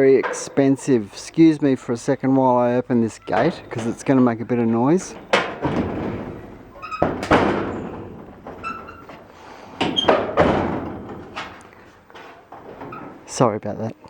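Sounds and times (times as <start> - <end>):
metallic ringing: 1.7 - 9.2
gate thuds and knocks: 2.6 - 13.3.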